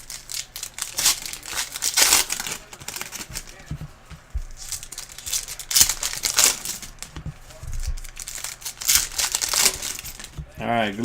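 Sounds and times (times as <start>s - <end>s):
plastic wrapping crinkling and tearing: 0.0s - 11.0s.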